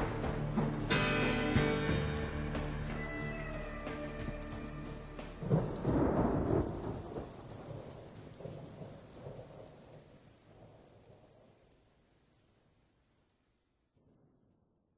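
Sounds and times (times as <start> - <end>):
thunder rumble: 0.0 - 3.0, 4.2 - 11.6
rain falling: 0.0 - 14.2.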